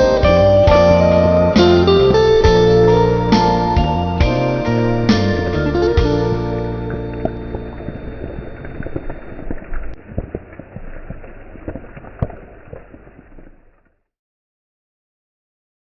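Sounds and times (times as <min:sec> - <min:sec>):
held notes of a song: 0:00.0 - 0:08.7
rain pattering: 0:04.6 - 0:14.0.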